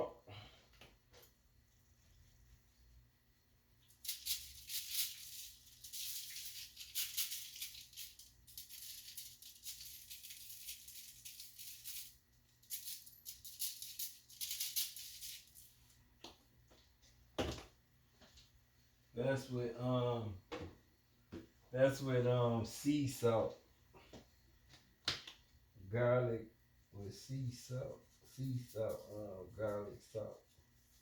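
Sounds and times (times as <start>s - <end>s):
salt shaker rattling: 3.9s - 15.6s.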